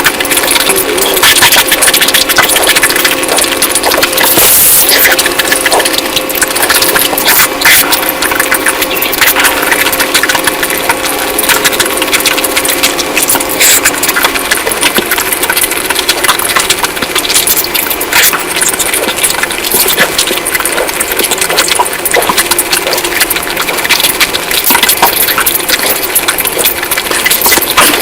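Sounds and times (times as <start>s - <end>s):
person chewing and lip-smacking: 0.0s - 28.0s.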